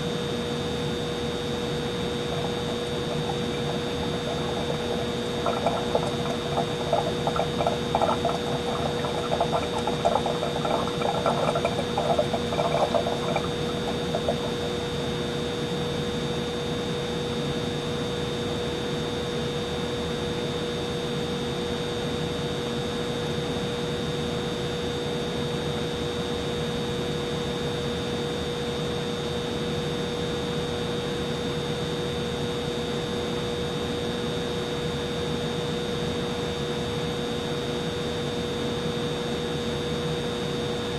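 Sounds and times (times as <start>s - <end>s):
humidifier hum and whine: 0.0s - 40.9s
water gurgling and bubbling: 1.4s - 16.2s.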